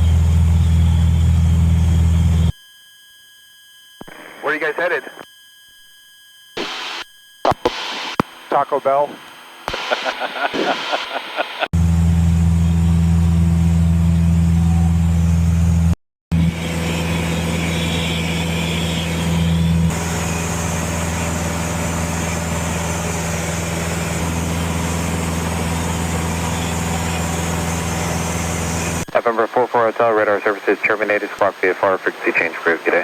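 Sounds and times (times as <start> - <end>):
aircraft engine and propeller droning: 16.4 - 29.0.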